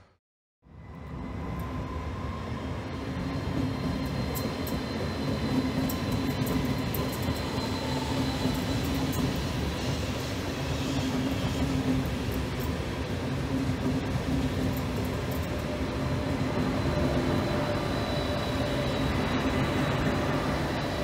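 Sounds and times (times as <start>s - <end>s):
wheels rumbling on rail: 0.7s - 21.0s
thin high whine: 15.2s - 21.0s.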